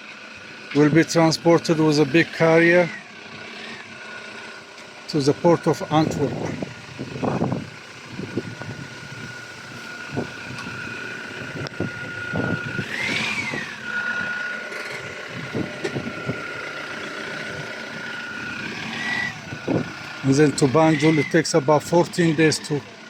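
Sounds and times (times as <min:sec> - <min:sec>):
motor vehicle whine: 0:00.0 - 0:23.0.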